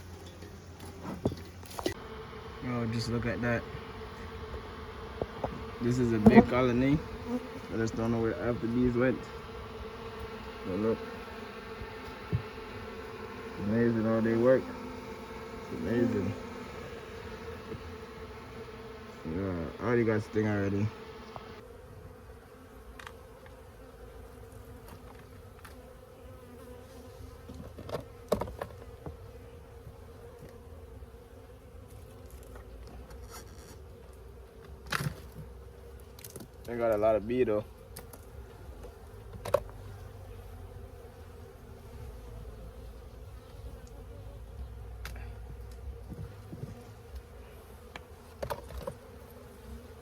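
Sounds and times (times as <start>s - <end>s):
bees buzzing: 0.0s - 50.0s.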